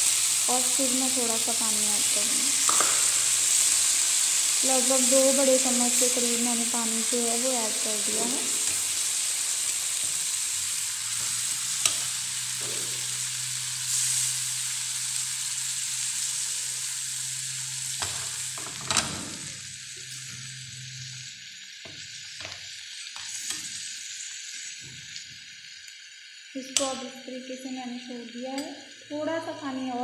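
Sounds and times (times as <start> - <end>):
gravy sizzling in a pan: 0.0 - 30.0
metal spoon tapping and scraping pan: 2.6 - 3.0.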